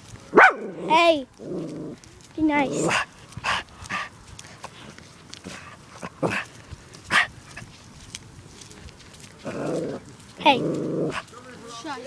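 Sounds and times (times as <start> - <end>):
dog barking: 0.4 - 0.7.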